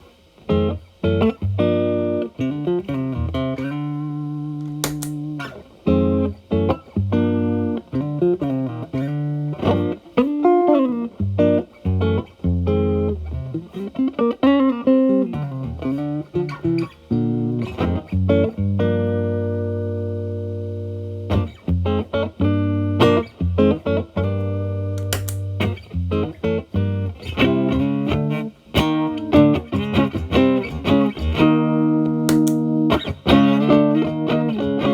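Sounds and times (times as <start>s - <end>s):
sharp click: 4.6s - 5.4s, 25.0s - 25.5s, 32.3s - 32.7s.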